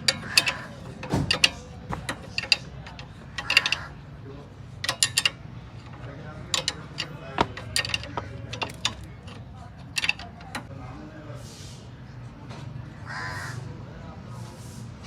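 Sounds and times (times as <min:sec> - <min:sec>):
metallic tool clicks: 0:00.0 - 0:03.9, 0:04.8 - 0:10.7.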